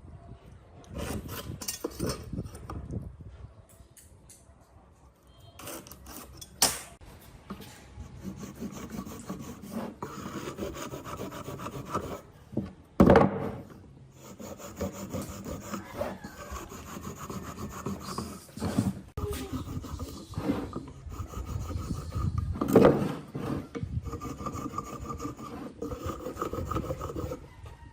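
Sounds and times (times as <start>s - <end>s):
hand scraping wood: 7.5s - 12.3s, 13.5s - 27.5s.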